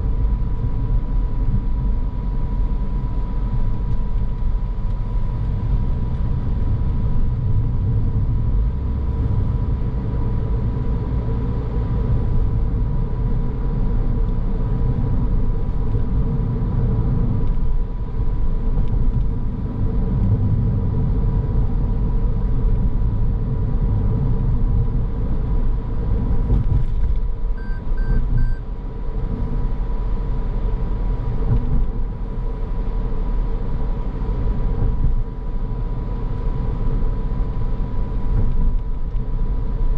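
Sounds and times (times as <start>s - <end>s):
car tyre and engine rumble: 0.0s - 39.9s
short high beeps: 27.6s - 28.6s.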